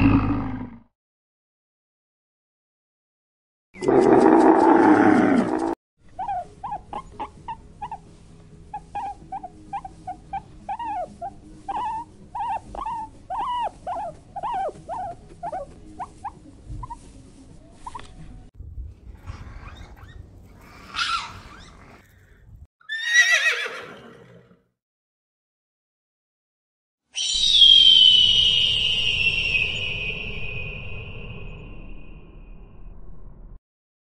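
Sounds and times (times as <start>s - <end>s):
deep animal roar: 0.0s - 0.9s, 3.8s - 5.8s
animal yelping calls: 3.8s - 8.1s, 8.7s - 17.1s, 19.2s - 22.3s.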